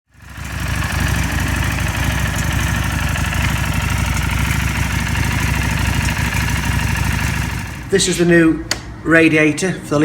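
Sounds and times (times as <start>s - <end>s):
motorcycle engine idling: 0.1s - 8.1s.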